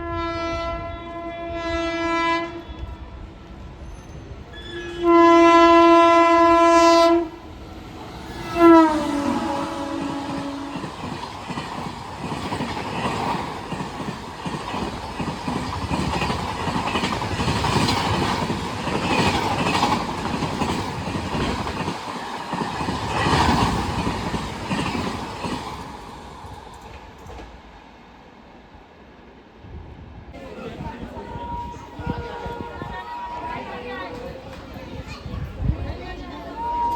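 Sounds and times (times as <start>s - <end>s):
train horn: 0.0s - 3.2s, 4.5s - 7.5s, 8.2s - 11.2s, 31.1s - 34.2s, 36.5s - 36.9s
train wheels clattering: 7.7s - 27.6s.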